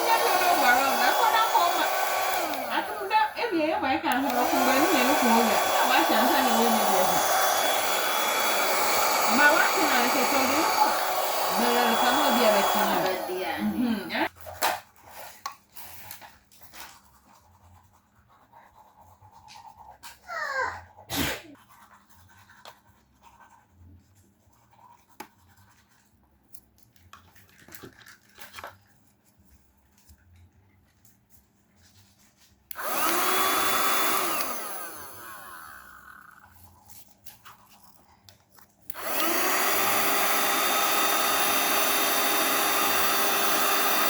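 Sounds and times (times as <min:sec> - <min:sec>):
vacuum cleaner motor whining: 0:00.0 - 0:14.3, 0:32.7 - 0:36.7, 0:38.9 - 0:44.0.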